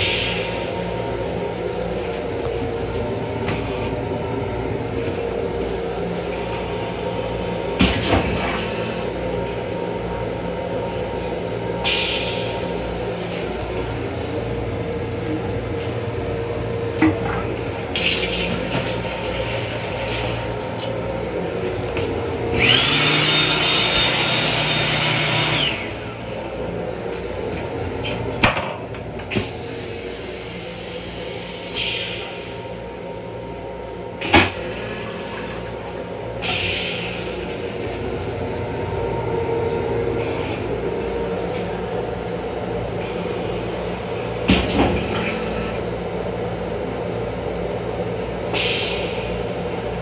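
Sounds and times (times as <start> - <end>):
railcar running hum: 0.0 - 50.0
loud whirring: 22.4 - 26.9.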